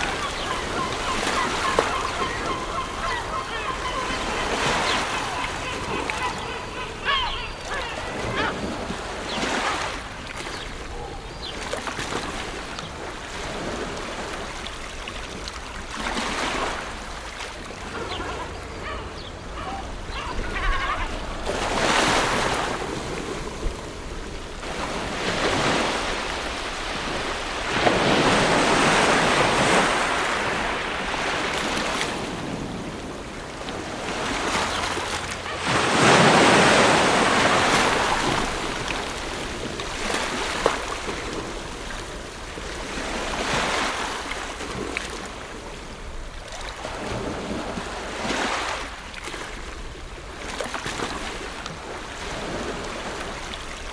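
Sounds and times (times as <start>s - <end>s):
ocean waves breaking: 0.0s - 53.9s.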